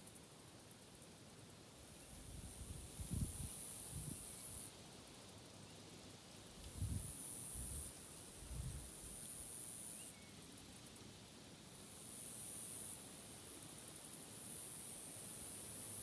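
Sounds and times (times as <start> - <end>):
insects buzzing: 0.0 - 16.0
wind gusts on microphone: 2.2 - 4.2, 6.7 - 7.8.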